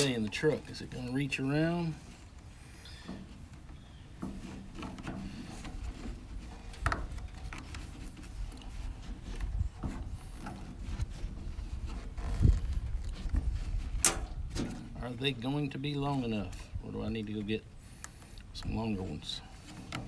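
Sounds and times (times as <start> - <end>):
rubbing on plastic hose: 1.8 - 15.1.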